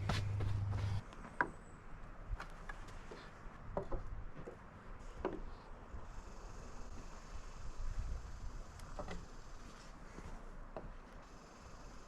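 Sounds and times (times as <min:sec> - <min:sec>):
rubbing sounds: 0:00.0 - 0:01.0.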